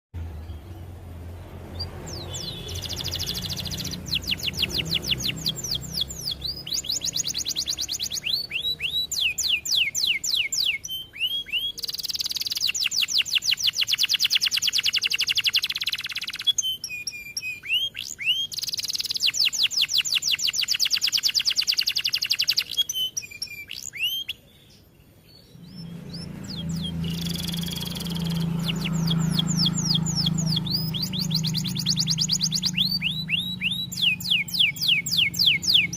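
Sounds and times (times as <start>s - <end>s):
canary singing trills: 0.2s - 35.9s.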